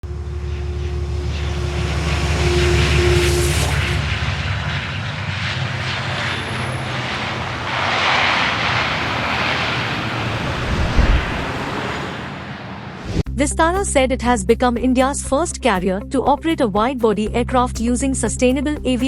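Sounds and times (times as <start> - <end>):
jet engines rushing and rumbling: 0.0 - 13.3.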